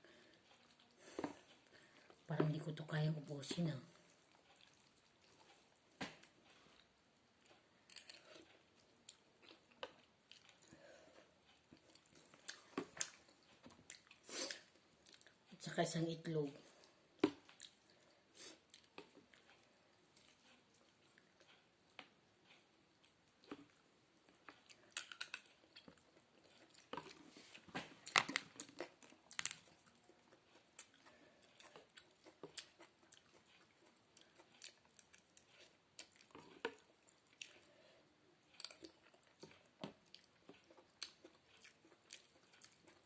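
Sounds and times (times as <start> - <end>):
person chewing noodle soup: 0.0 - 2.3, 3.9 - 15.6, 16.7 - 43.0.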